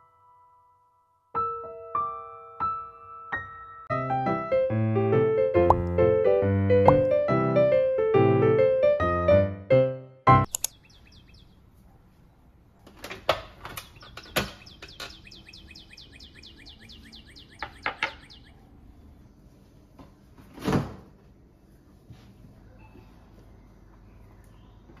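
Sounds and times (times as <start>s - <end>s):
sharp clicks: 10.5s - 10.9s
small bird chirping: 10.5s - 11.9s, 13.6s - 19.1s.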